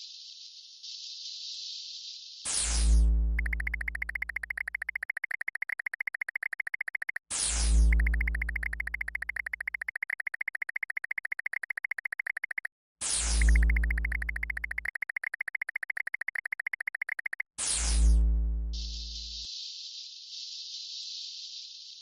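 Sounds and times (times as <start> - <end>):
synthesized swelling tone and pulsing: 3.4 - 7.2, 7.8 - 12.7, 13.4 - 17.4.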